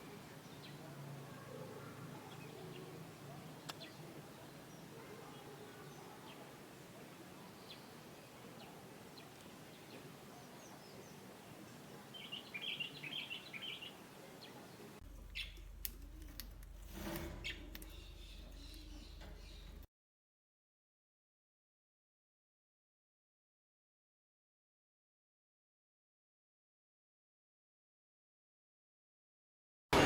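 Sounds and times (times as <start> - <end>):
small birds chirping: 0.0 - 16.6, 17.4 - 19.9.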